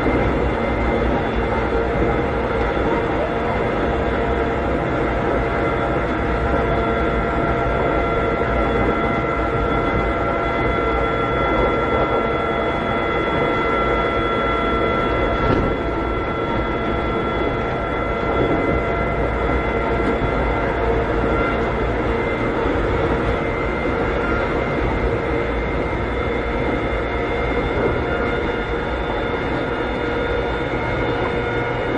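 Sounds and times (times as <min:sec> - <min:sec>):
train interior rumble and whine: 0:00.0 - 0:31.9.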